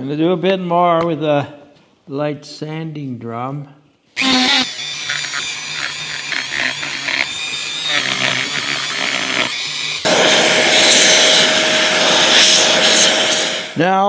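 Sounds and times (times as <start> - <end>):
rotary tool sanding plastic: 4.2 - 13.8.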